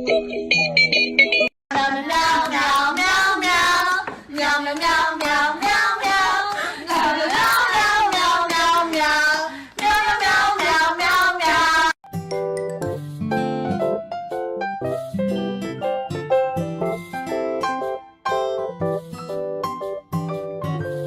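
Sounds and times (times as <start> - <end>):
people singing: 1.7 - 12.0
hand claps keeping a beat: 2.1 - 11.9.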